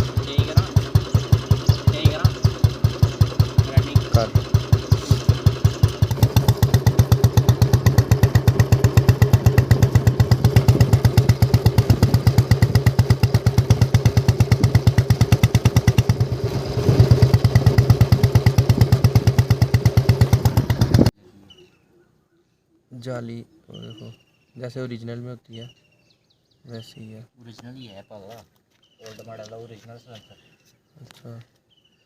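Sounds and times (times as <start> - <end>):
motorcycle engine idling: 0.0 - 21.1.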